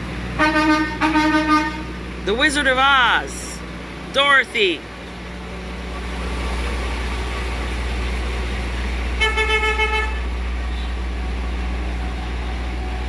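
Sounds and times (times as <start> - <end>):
vehicle horn tooting: 0.4 - 2.0, 9.2 - 10.9.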